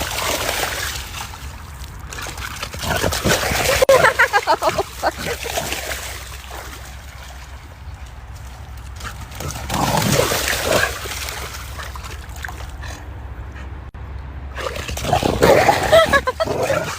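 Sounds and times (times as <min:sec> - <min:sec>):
dog splashing in water: 0:00.0 - 0:12.8.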